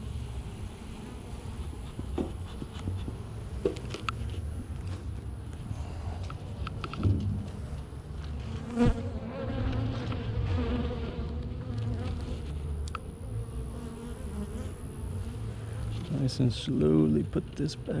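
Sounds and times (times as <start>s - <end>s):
bees buzzing: 7.4s - 17.0s.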